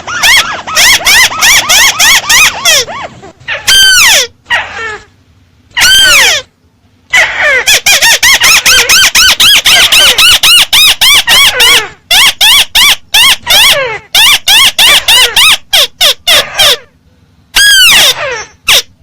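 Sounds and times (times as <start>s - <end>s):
bird calling: 0.0s - 5.0s.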